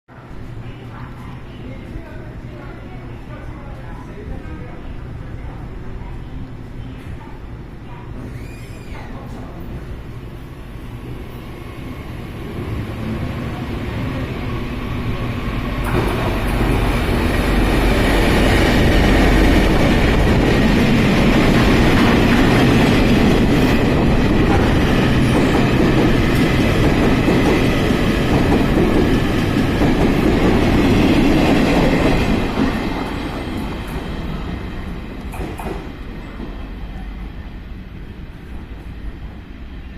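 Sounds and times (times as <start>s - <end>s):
freight train passing: 9.1s - 39.9s.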